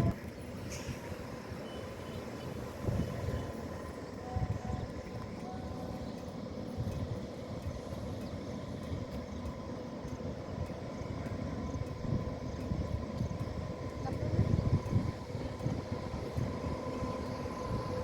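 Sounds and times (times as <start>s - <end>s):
train rumbling on rails: 0.0s - 18.0s.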